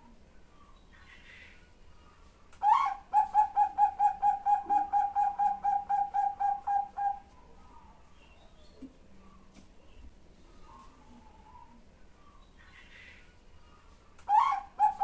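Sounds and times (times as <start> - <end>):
dove cooing: 2.6 - 7.9, 14.3 - 15.0.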